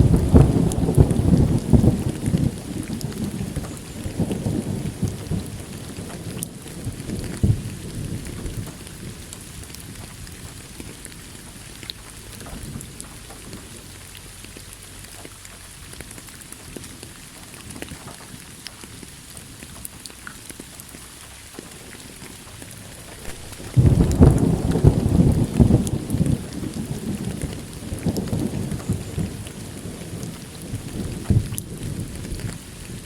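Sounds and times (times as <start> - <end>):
thunder rumbling: 0.0 - 14.0, 21.6 - 33.0
rain pattering: 0.0 - 33.0.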